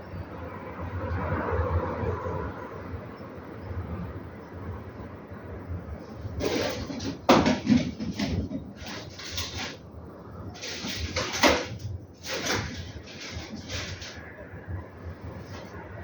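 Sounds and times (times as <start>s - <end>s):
sandpaper scrubbing metal: 10.6s - 14.2s.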